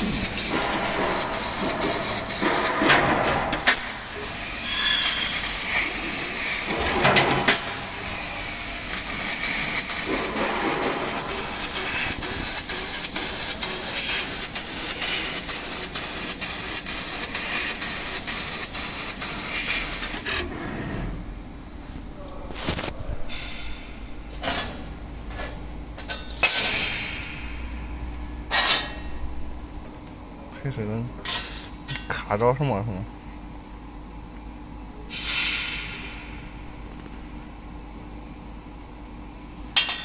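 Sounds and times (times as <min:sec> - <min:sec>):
gas hiss from laser cutter: 0:00.0 - 0:02.9, 0:03.5 - 0:20.4.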